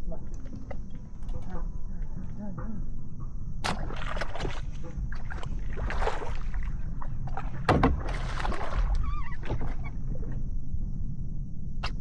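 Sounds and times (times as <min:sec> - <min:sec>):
wind rumble on microphone: 0:00.0 - 0:12.0
water splashing against kayak: 0:03.7 - 0:10.0.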